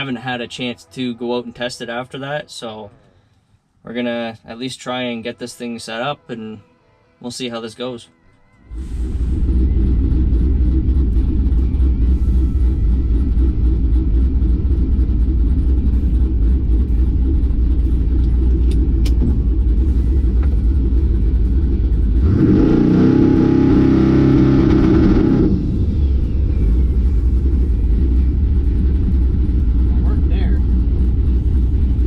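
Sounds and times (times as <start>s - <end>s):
louder engine hum: 8.7s - 32.0s
vehicle rumble from inside cab: 8.7s - 32.0s.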